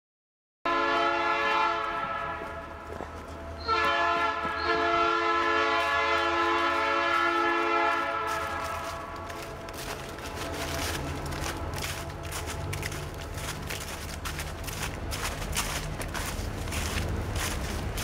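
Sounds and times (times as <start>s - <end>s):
locomotive air horn: 0.7s - 13.9s
train rumbling past: 0.7s - 18.0s.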